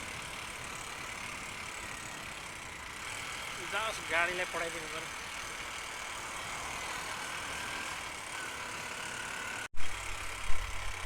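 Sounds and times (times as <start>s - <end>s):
motorcycle engine drone: 0.0s - 11.0s.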